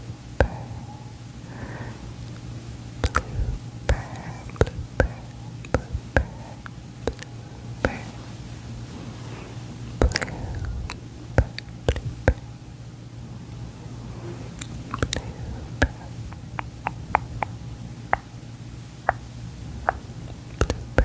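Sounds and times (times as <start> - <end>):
low steady hum: 0.0 - 21.0
wet mouth clicks: 2.3 - 8.1, 10.0 - 12.4, 14.5 - 18.4, 19.0 - 21.0.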